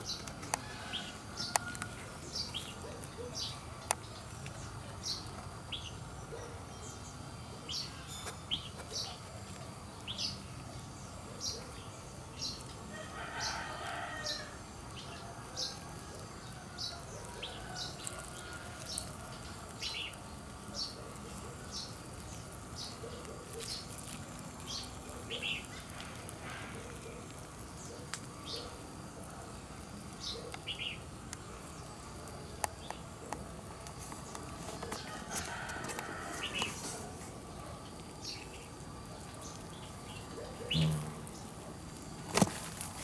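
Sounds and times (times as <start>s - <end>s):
low background noise: 0.0s - 43.0s
small bird chirping: 38.2s - 41.6s.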